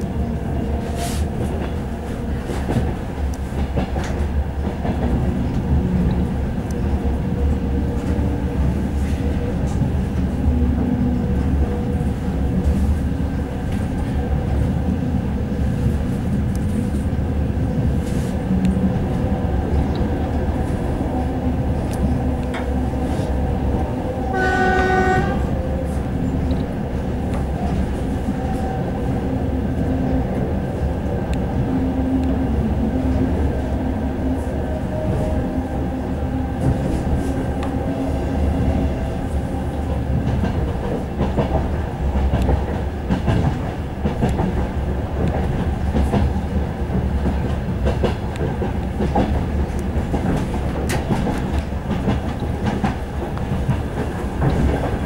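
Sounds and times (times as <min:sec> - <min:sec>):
clickety-clack of rail joints: 0:00.0 - 0:55.0
train wheels rumbling on rail: 0:00.0 - 0:55.0
train horn blast: 0:24.2 - 0:25.7.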